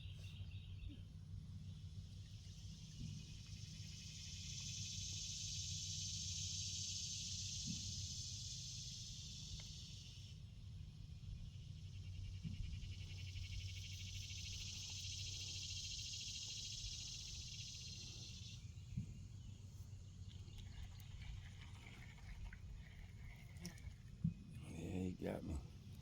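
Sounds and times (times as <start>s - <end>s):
insect trill: 1.6s - 26.0s
faint low hum: 9.5s - 26.0s.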